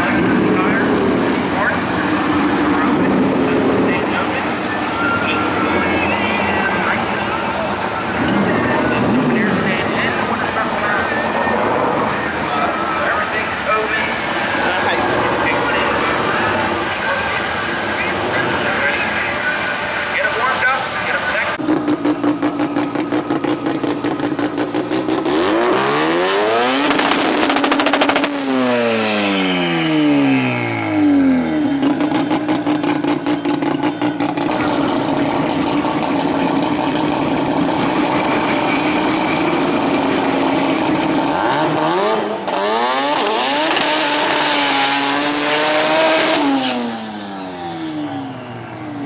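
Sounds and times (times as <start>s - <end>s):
race car engine revving loudly: 20.5s - 48.5s.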